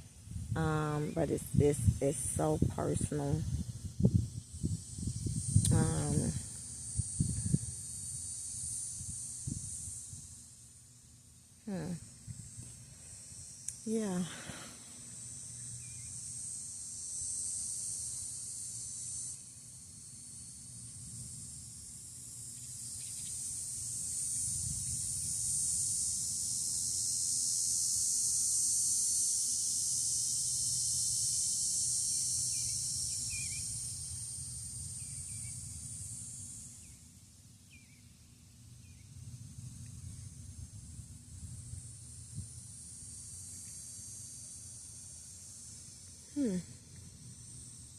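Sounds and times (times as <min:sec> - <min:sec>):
insect chorus: 0:00.0 - 0:47.9
wind rumble on microphone: 0:00.1 - 0:08.3, 0:08.9 - 0:10.4, 0:24.4 - 0:25.9, 0:39.5 - 0:42.7.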